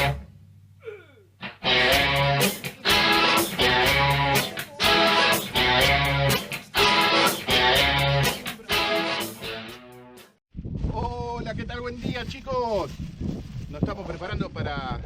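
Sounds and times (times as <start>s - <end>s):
strummed electric guitar: 1.4s - 10.3s.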